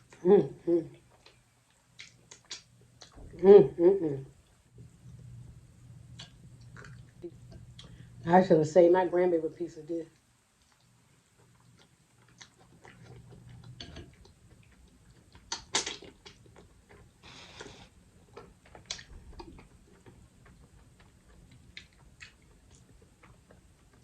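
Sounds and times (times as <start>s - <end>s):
crab shell clicks and mouth smacks: 15.4s - 16.4s.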